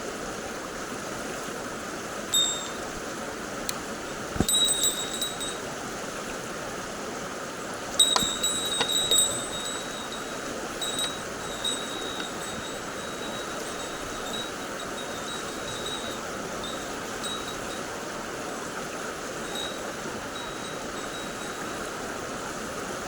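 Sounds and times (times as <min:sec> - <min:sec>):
stream water flowing: 0:00.0 - 0:23.0
thin high tone: 0:02.4 - 0:03.0, 0:04.1 - 0:05.8, 0:07.9 - 0:21.9.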